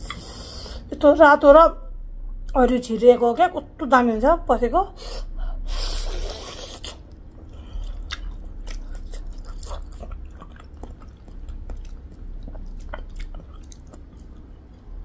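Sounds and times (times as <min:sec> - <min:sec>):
person chewing food: 0:05.7 - 0:14.9.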